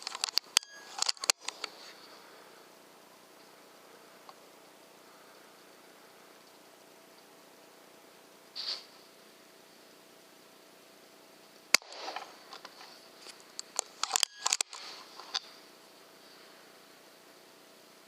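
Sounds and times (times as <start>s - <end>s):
air rifle shot: 11.8s - 12.2s.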